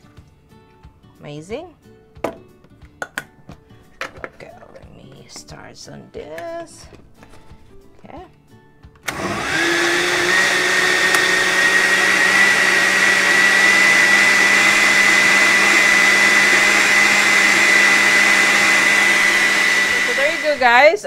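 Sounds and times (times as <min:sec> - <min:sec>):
blender motor whining: 0:09.0 - 0:20.9.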